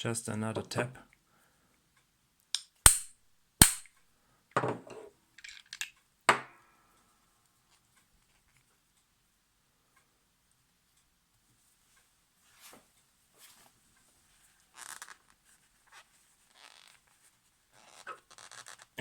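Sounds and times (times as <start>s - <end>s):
hammer striking metal: 2.9s - 3.9s.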